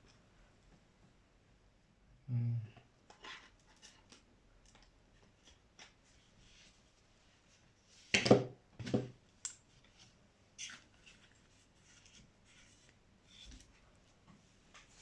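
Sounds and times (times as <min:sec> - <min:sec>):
soft rustling: 0:09.6 - 0:15.0.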